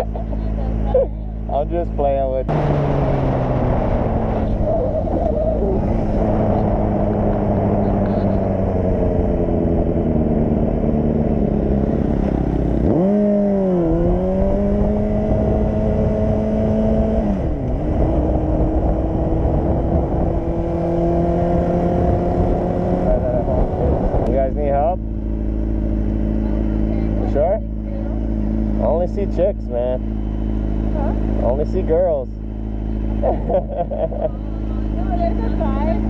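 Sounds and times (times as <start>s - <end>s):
motorcycle engine running: 0.0s - 36.0s
wind rumble on microphone: 2.5s - 25.2s.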